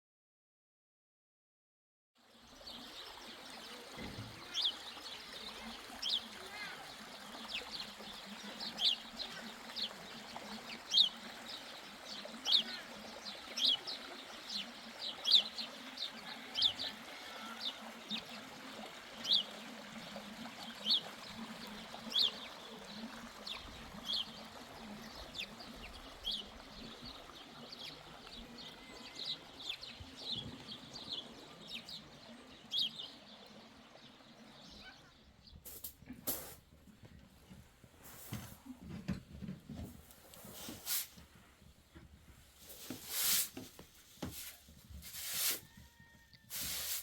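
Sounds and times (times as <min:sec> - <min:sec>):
small birds chirping: 0:02.4 - 0:47.0.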